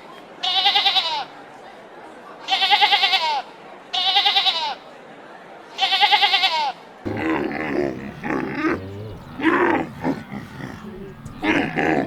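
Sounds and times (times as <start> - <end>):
goat bleating: 5.8 - 12.0
low rough animal call: 7.1 - 12.0.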